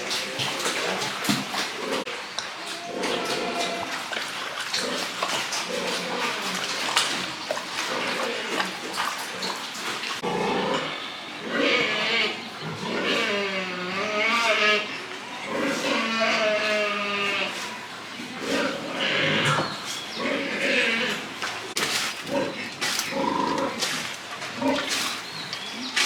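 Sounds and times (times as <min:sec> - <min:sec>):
pigs squealing: 0:02.7 - 0:21.4.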